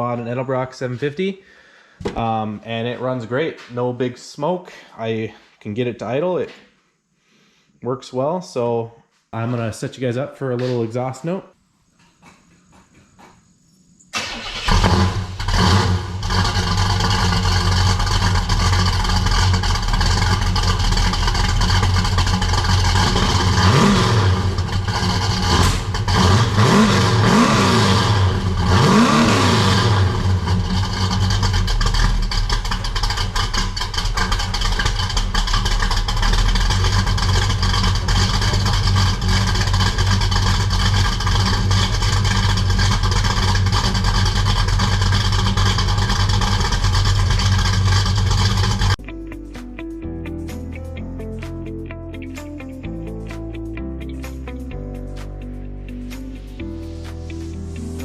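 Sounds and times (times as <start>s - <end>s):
car engine starting and idling: 14.1s - 49.0s
engine revving: 14.2s - 49.0s.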